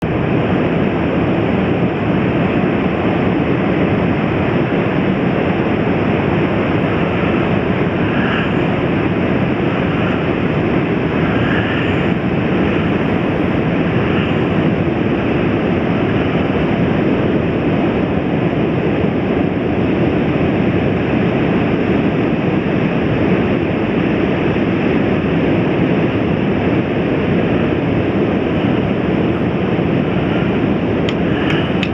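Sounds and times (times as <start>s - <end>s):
ocean surf breaking: 0.1s - 21.2s, 26.5s - 31.9s.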